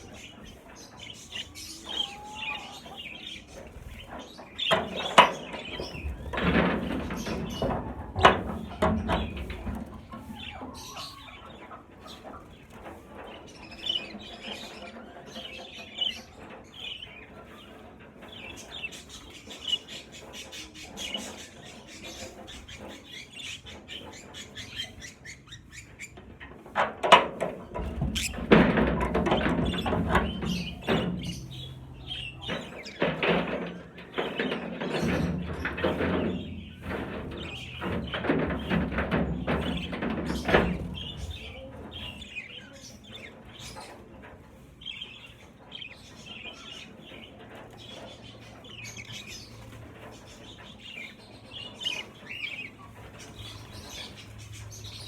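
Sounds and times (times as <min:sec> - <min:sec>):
fluttering wings and rustling: 0:00.0 - 0:55.0
budgerigars chirping: 0:27.9 - 0:28.6.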